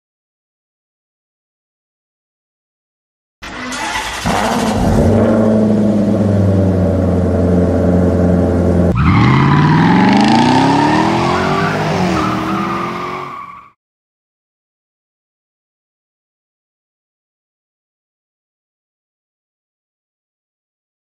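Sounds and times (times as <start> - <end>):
car engine revving: 3.4 - 13.4.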